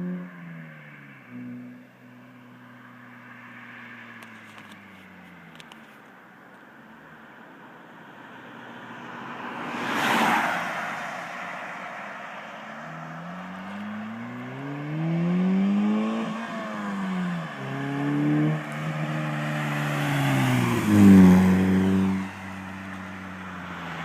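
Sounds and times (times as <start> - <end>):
car engine accelerating: 12.6 - 24.0.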